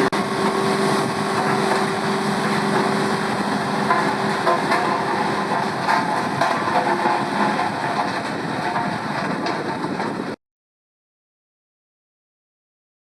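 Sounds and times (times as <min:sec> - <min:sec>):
machinery rattling clatter: 0:00.0 - 0:10.4.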